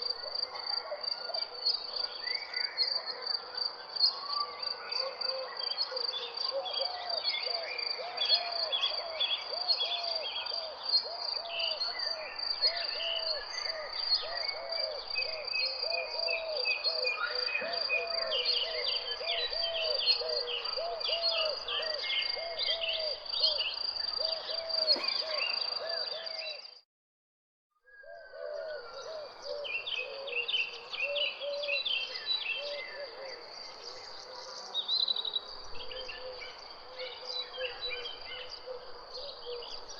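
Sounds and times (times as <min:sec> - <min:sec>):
birds chirping: 0:21.1 - 0:26.1.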